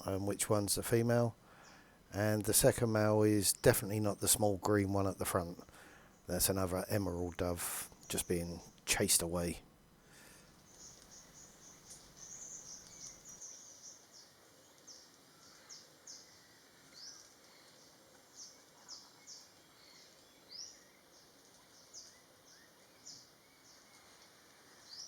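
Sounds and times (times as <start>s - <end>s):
faint high bird chirps: 10.6s - 25.0s.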